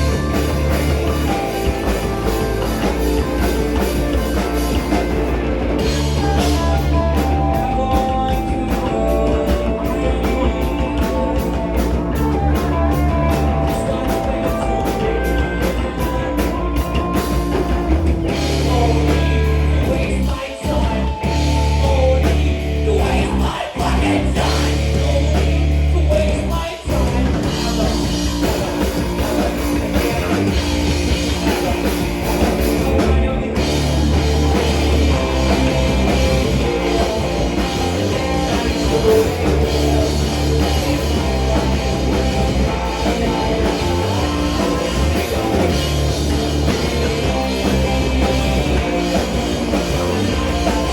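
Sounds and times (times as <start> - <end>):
bass guitar: 0.0 - 50.9
drum kit: 0.0 - 50.9
electric guitar: 0.0 - 50.9
person singing: 5.8 - 17.1, 18.4 - 30.6.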